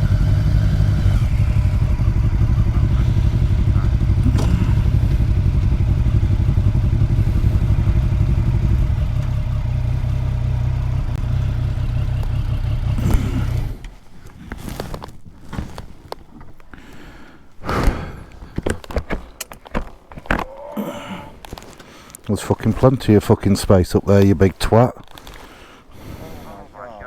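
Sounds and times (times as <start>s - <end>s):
motorcycle engine idling: 0.0s - 14.0s
clatter: 0.0s - 16.2s.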